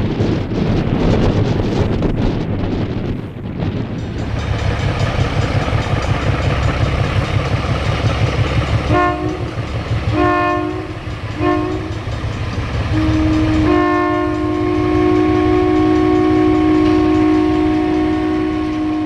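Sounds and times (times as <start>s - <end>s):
locomotive low rumble: 0.0s - 19.0s
locomotive air horn blasts: 8.9s - 12.0s, 12.8s - 19.0s.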